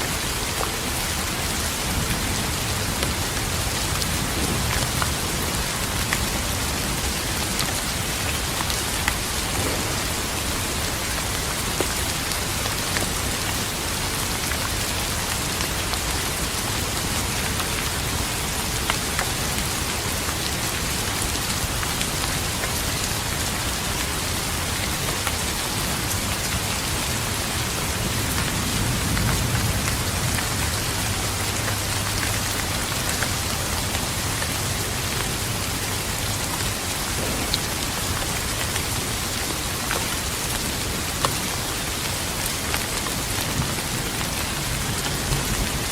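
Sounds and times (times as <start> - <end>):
rain hissing: 0.2 - 45.9
low thunder rumble: 9.1 - 11.7, 37.1 - 38.6.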